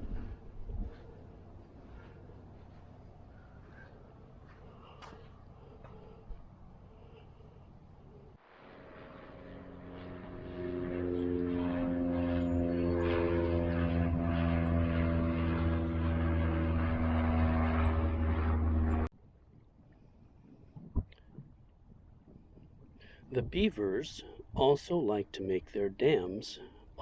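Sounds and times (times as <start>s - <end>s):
motor droning hum: 0.0s - 19.1s.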